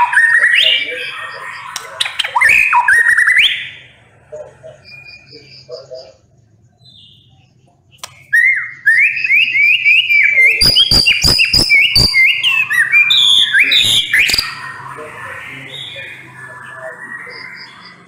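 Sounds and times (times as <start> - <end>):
bird singing whistled phrases: 0.0 - 3.8, 8.0 - 18.0
sharp bird clicks: 1.6 - 2.6, 7.9 - 8.4, 9.2 - 12.6.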